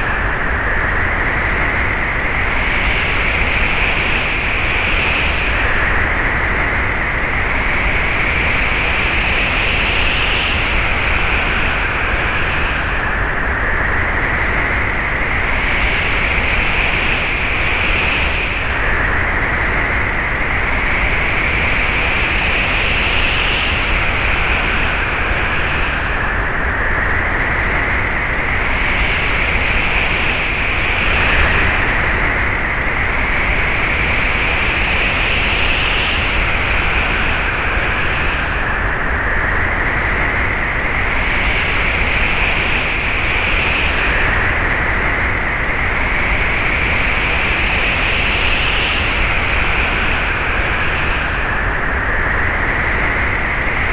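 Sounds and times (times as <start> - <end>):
wind whistling: 0.0 - 53.9
wind rushing: 27.6 - 35.6.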